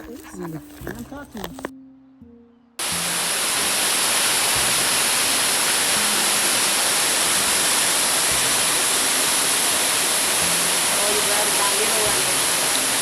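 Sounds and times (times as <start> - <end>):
river water rushing: 2.8 - 13.0.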